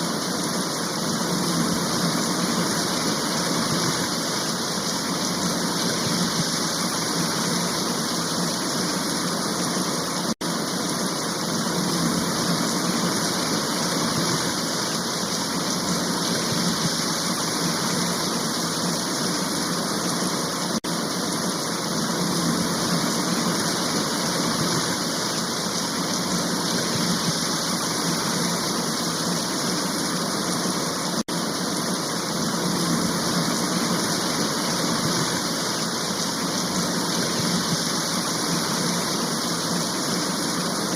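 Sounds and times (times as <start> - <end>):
heavy rain hissing: 0.0 - 40.9.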